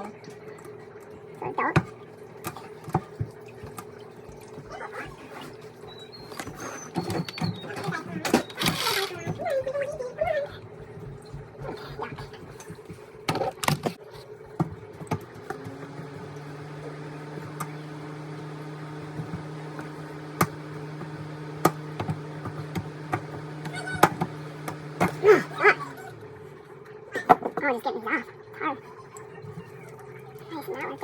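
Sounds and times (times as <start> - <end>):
machine hum: 5.6 - 27.2.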